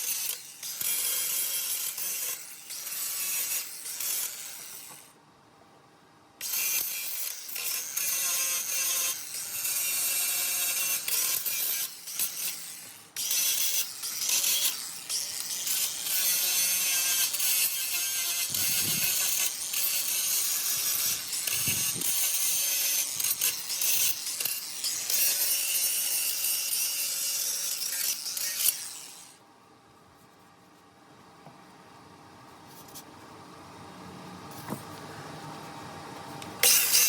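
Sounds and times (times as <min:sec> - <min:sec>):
faint motor whine: 0:00.0 - 0:37.0
grinder scraping metal: 0:06.4 - 0:29.4, 0:36.6 - 0:37.0.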